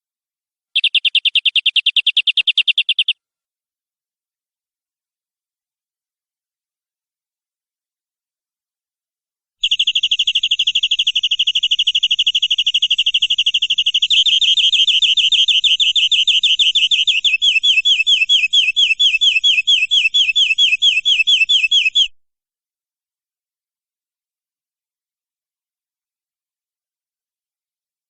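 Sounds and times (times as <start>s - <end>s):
canary singing trills: 0.8s - 3.2s, 9.6s - 22.2s.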